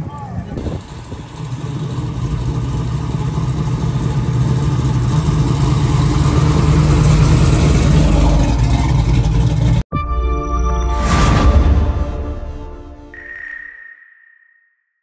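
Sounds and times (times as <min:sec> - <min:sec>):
car engine rolling past: 0:00.7 - 0:09.8.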